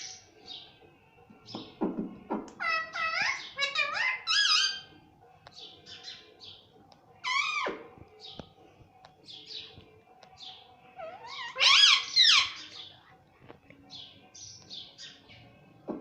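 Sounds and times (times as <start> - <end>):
parrot calling: 2.5 - 4.9, 7.2 - 7.9, 11.0 - 12.9.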